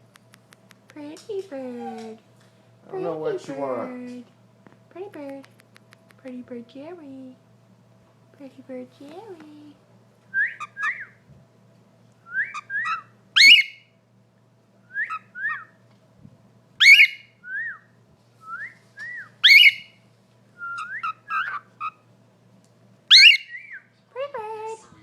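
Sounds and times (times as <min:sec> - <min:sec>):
bird whistling: 0:10.3 - 0:11.2, 0:12.2 - 0:13.9, 0:14.9 - 0:15.7, 0:16.8 - 0:20.0, 0:20.6 - 0:21.9, 0:23.1 - 0:23.9
sharp upward-sweeping bird call: 0:12.6 - 0:13.8, 0:16.8 - 0:17.2, 0:19.4 - 0:19.9, 0:23.1 - 0:23.6.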